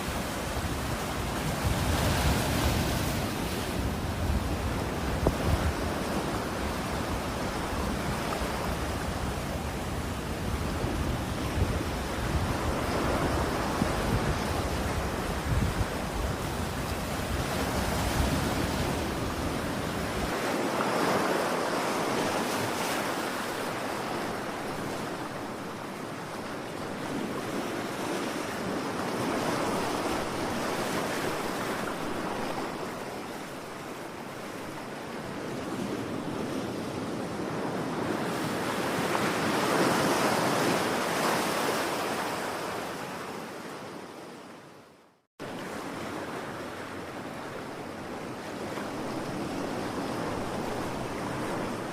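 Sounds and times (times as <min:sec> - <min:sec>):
ocean waves washing in: 0:45.4 - 0:51.9.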